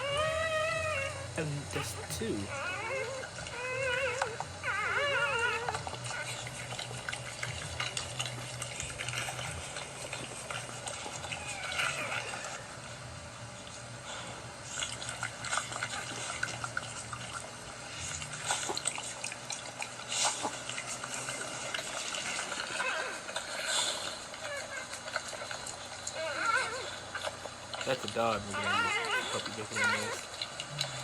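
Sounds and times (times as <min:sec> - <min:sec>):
puppy squeak: 0:02.4 - 0:05.8, 0:26.2 - 0:26.9, 0:28.2 - 0:30.2
dog licking and slurping: 0:05.9 - 0:11.4.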